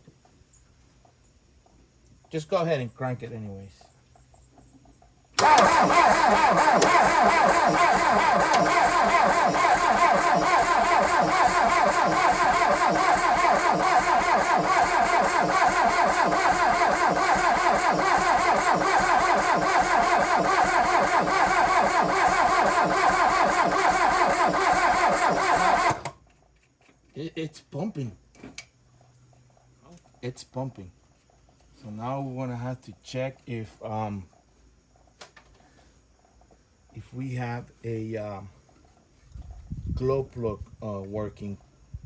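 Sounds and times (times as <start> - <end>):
starter motor cranking diesel engine: 5.4 - 26.2.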